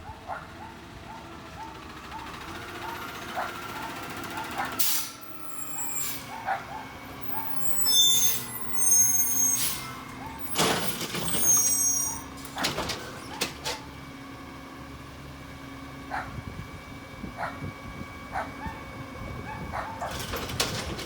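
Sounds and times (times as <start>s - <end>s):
garbage truck engine running: 0.8s - 21.0s
high-pitched metallic squealing: 4.9s - 6.4s, 7.2s - 12.4s.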